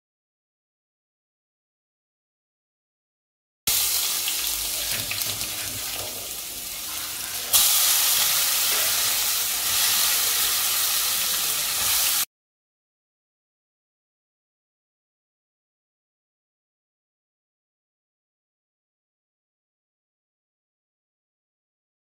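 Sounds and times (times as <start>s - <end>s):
hot oil sizzling in a wok: 3.7s - 12.3s.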